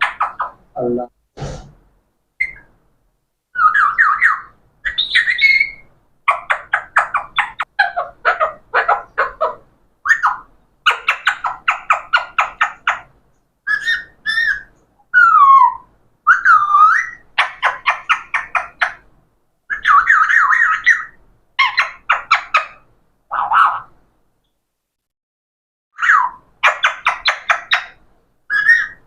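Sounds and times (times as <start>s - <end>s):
parrot squawking: 0.0s - 0.6s, 3.6s - 13.1s, 13.7s - 19.0s, 19.7s - 23.9s, 26.0s - 29.0s.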